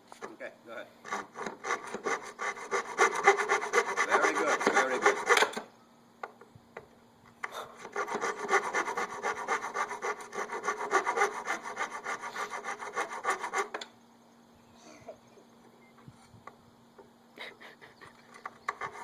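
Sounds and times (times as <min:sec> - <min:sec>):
hand saw cutting plywood: 0:01.0 - 0:05.6, 0:07.8 - 0:13.8, 0:18.6 - 0:19.0.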